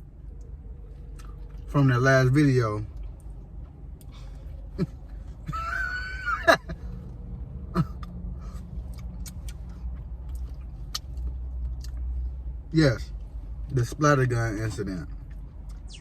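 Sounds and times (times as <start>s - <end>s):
chewing clicks: 8.8s - 12.1s
lip smacks: 8.8s - 12.1s.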